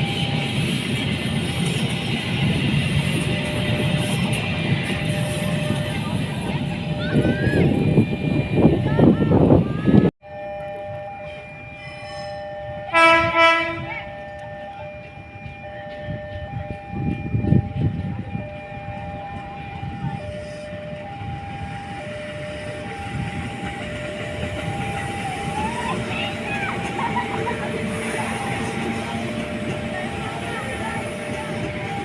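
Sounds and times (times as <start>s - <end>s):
train rumble: 0.0s - 32.0s
two-pitch electronic warning tones: 0.0s - 32.0s
train horn: 11.1s - 14.8s.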